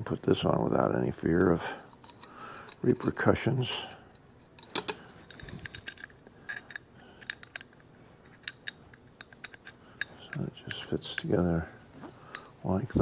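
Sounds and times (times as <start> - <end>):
metal parts clicking and clinking: 1.4 - 11.3.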